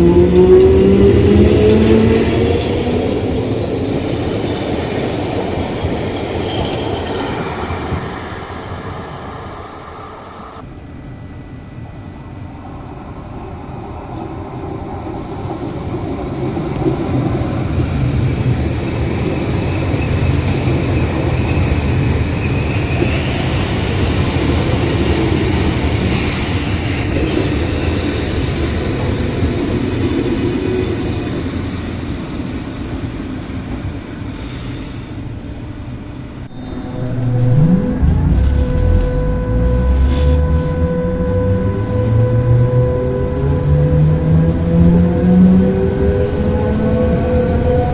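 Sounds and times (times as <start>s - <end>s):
electric train running on rails: 0.0s - 47.9s.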